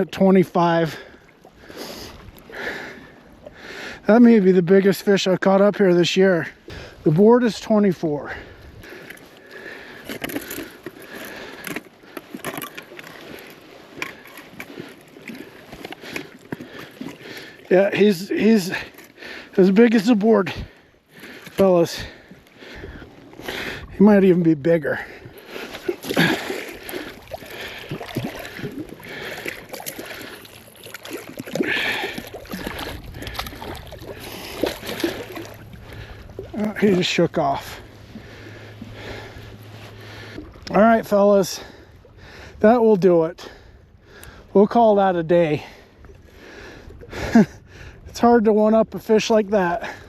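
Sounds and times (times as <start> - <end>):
water sloshing and splashing: 0.0 - 48.4
water dripping: 25.8 - 36.9.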